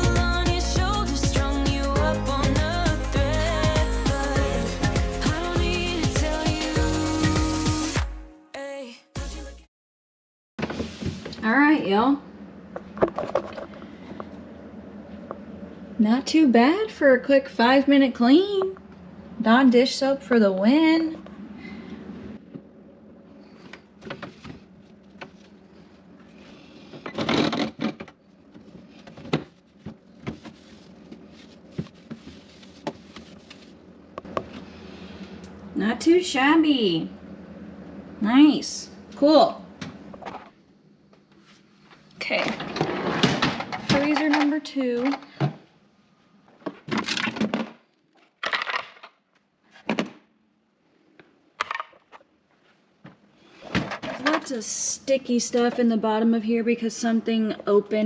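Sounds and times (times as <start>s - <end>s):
rustling scrape: 28.6s - 33.8s.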